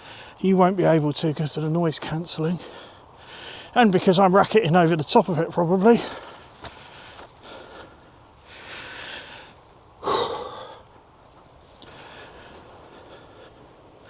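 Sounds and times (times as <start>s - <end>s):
man breathing hard: 0.0s - 0.4s, 2.6s - 3.8s, 6.0s - 11.0s, 11.8s - 13.9s.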